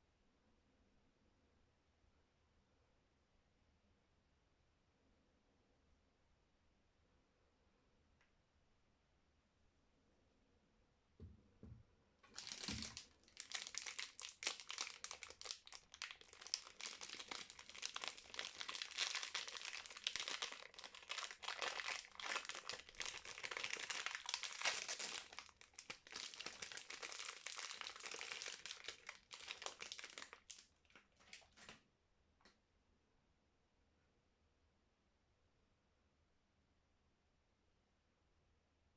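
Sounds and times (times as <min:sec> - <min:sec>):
soap wrapper crinkling: 0:12.3 - 0:31.8.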